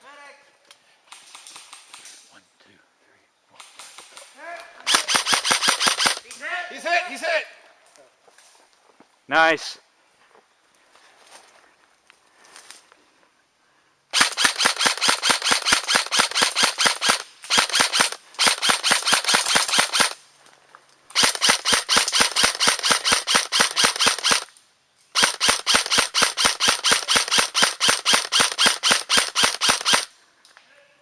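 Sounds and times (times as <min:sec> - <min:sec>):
airsoft gun firing full auto: 0:04.9 - 0:06.2, 0:14.1 - 0:20.2, 0:21.1 - 0:24.5, 0:25.2 - 0:30.1.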